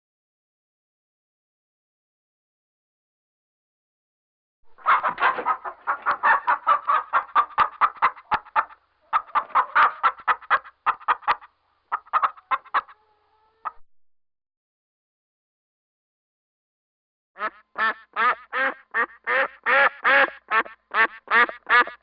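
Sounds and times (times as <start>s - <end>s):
chickens clucking: 4.7s - 13.8s.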